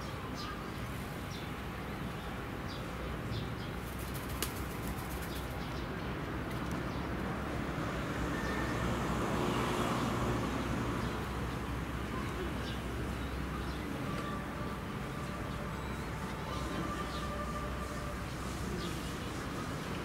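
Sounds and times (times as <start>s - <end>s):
outdoor background noise: 0.0s - 20.0s
small birds chirping: 0.3s - 7.1s.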